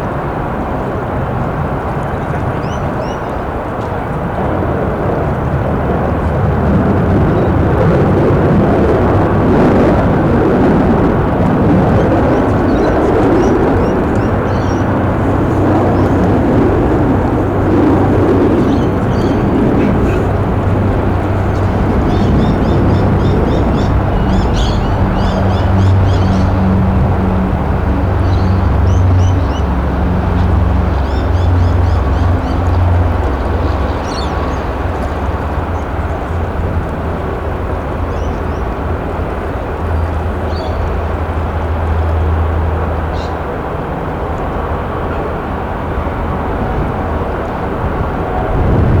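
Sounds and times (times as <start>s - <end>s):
jet engines roaring: 0.0s - 49.0s
wind buffeting microphone: 0.0s - 49.0s
birds chirping faintly: 12.0s - 16.2s, 18.5s - 27.0s, 28.2s - 36.0s.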